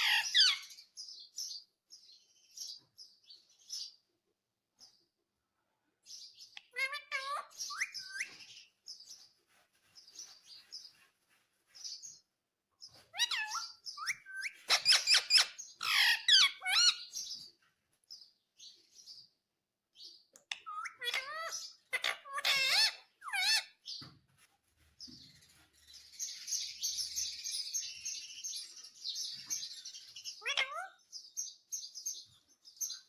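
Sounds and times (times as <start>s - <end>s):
parrot chirps and squawks: 0.0s - 0.8s, 6.5s - 8.4s, 13.0s - 17.2s, 20.5s - 23.8s, 30.0s - 31.1s.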